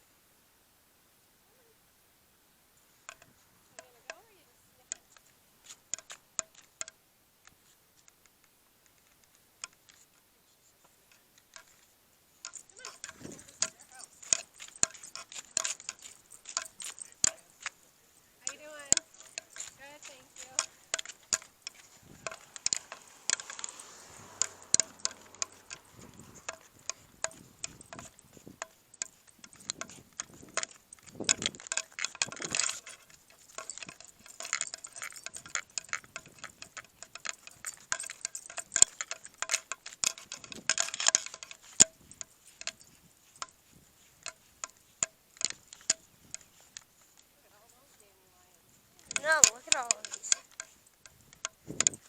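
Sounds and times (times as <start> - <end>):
light metallic clinks: 2.8 - 7.0, 8.8 - 52.0
footsteps: 10.8 - 51.0
scuffing rustle: 12.6 - 24.5, 41.4 - 52.0.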